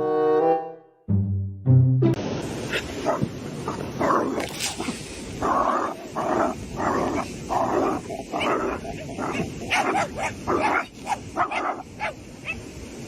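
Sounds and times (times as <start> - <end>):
dog barking: 5.6 - 12.6.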